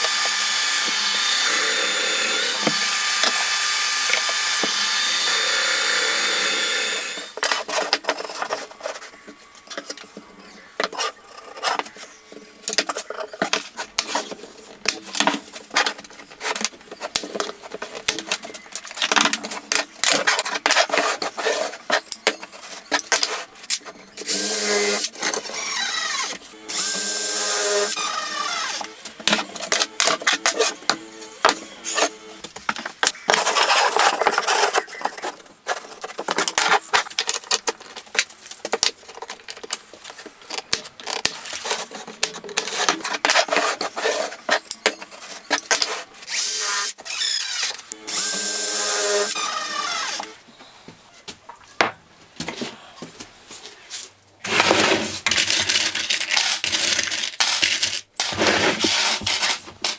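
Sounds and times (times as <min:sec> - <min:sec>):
power drill whirring: 0:00.0 - 0:07.4, 0:24.2 - 0:32.4, 0:46.2 - 0:50.4
power tool running: 0:00.0 - 0:07.4, 0:24.2 - 0:32.4, 0:46.3 - 0:50.4.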